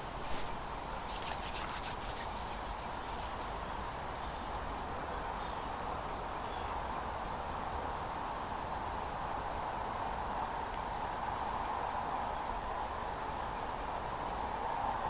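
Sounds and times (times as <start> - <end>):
scratchy rubbing strokes: 0.2 - 3.6.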